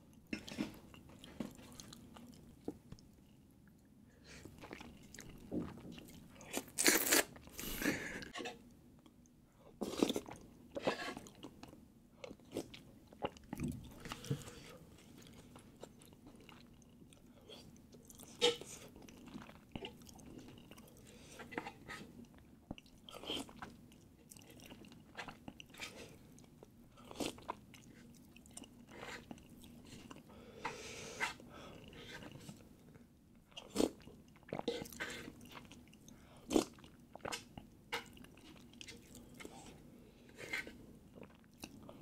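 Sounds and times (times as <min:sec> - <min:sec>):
person chewing with wet smacks: 0:00.1 - 0:03.1, 0:04.4 - 0:07.5, 0:11.1 - 0:30.3, 0:33.5 - 0:39.8, 0:40.6 - 0:42.0.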